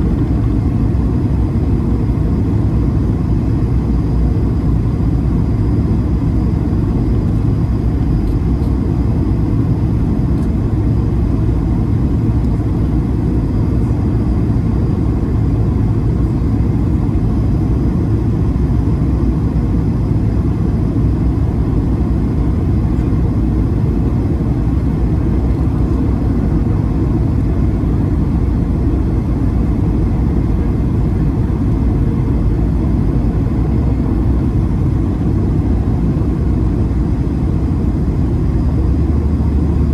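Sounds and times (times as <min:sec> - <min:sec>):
jet engines and cabin noise: 0:00.0 - 0:39.9.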